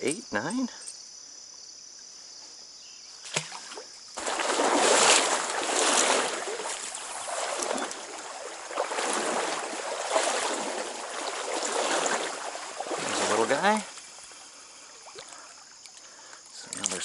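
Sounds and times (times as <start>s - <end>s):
stream water rushing: 4.2s - 15.5s.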